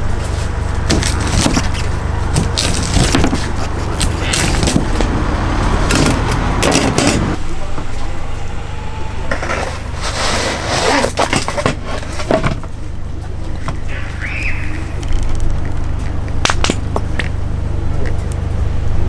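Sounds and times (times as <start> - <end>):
steady low hum: 0.0 - 19.0
knocks and clatter on a board: 0.9 - 5.2, 5.9 - 7.3, 11.1 - 12.7.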